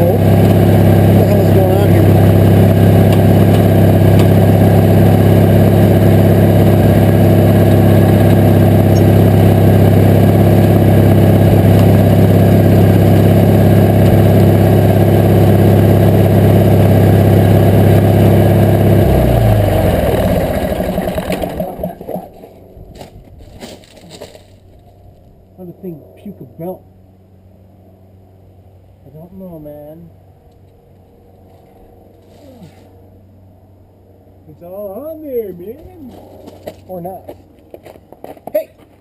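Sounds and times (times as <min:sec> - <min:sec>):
garden tractor engine running: 0:00.0 - 0:22.7.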